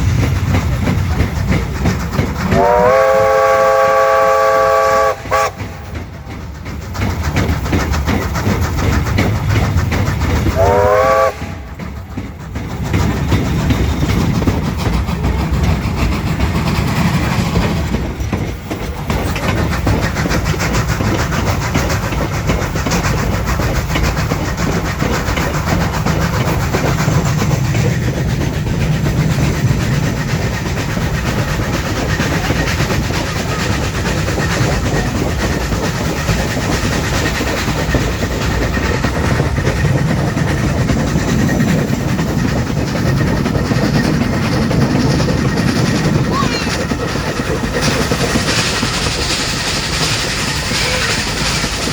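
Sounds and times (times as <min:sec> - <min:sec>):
train rumble and wheel clatter: 0:00.0 - 0:51.9
train whistle toot: 0:02.5 - 0:05.8, 0:10.6 - 0:11.7.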